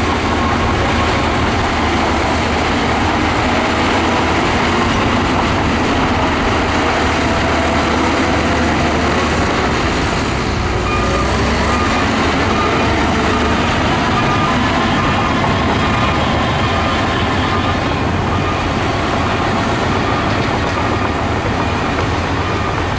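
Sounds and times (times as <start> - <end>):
bulldozer diesel engine running: 0.0 - 22.9.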